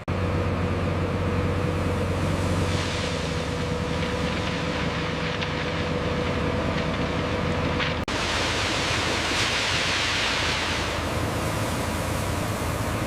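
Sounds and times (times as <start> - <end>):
diesel machinery engine hum: 0.0 - 13.0
loud steady hiss: 8.1 - 13.0.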